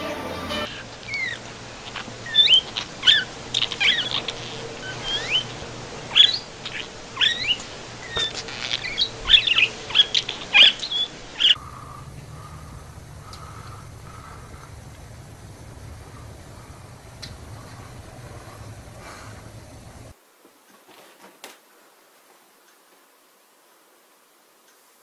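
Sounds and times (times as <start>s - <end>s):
budgerigar chirping: 1.1s - 1.4s, 2.2s - 12.7s.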